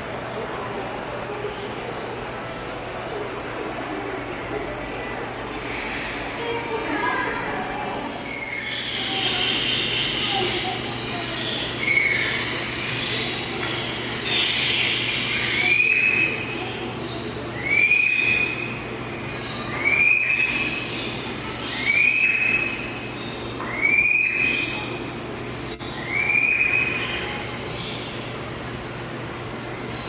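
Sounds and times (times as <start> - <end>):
bird whistled call: 14.3 - 16.5, 17.6 - 18.7, 19.6 - 20.9, 21.6 - 22.9, 23.6 - 24.8, 25.9 - 27.2.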